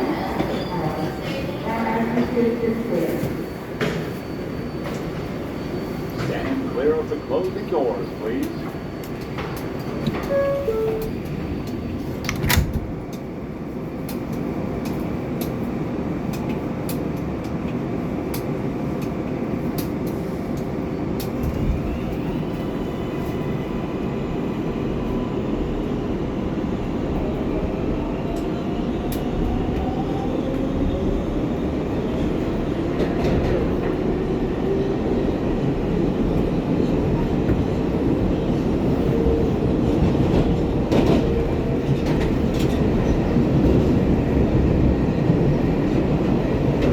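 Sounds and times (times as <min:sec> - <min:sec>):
subway train wheels rumbling: 0:00.0 - 0:46.9
train doors closing thump: 0:12.2 - 0:13.0.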